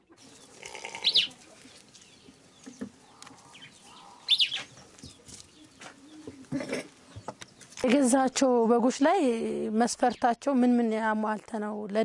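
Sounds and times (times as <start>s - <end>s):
high-pitched bird call: 1.0s - 1.4s, 3.1s - 4.8s.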